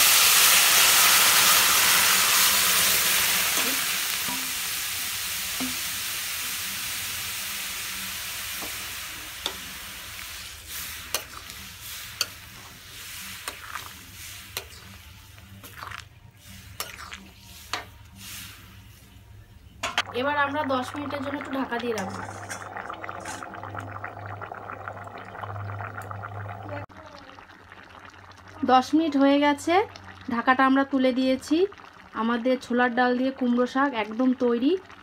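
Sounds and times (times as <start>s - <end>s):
food sizzling in hot oil: 0.0s - 18.9s, 19.9s - 35.0s
metal spatula clicking on pan: 11.1s - 11.4s.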